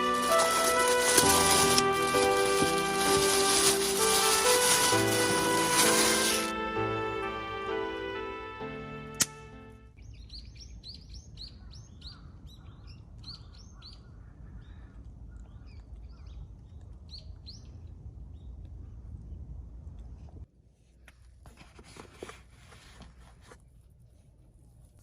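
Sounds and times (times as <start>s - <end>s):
background music: 0.0s - 9.9s
sharp click: 9.2s - 9.4s
small birds chirping: 10.0s - 19.0s
low steady rumble: 14.0s - 20.5s.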